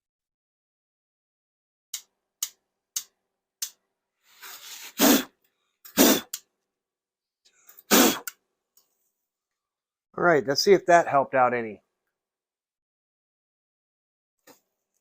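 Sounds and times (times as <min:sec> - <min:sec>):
breathy bursts of air: 0:04.3 - 0:05.3, 0:05.9 - 0:06.4, 0:07.8 - 0:08.3.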